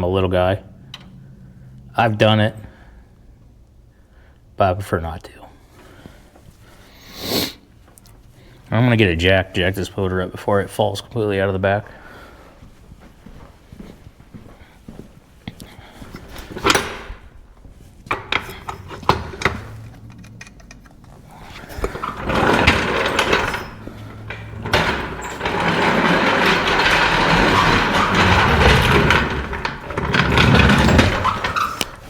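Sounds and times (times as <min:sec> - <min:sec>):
jack rattling clatter: 0:18.1 - 0:32.0
metal tools clanking: 0:18.1 - 0:32.0.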